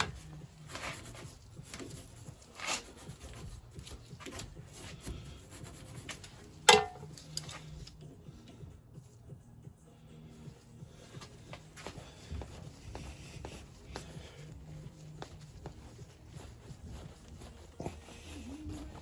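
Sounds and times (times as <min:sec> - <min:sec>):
metal scraping and rubbing: 0:00.0 - 0:08.0.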